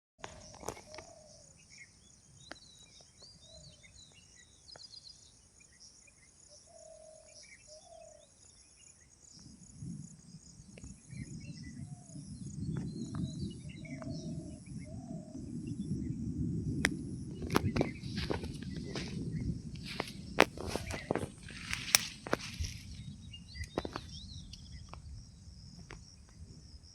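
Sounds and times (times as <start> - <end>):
insects chirring: 0.2 - 26.9
low rumbling noise: 11.8 - 25.8
sharp clicks: 19.8 - 22.7.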